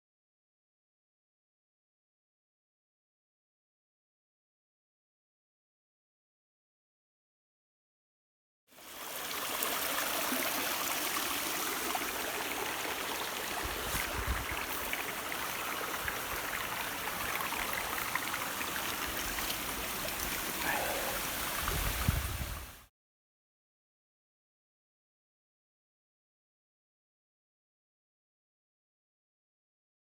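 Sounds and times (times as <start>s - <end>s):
waterfall and creek splashing: 8.7s - 22.9s.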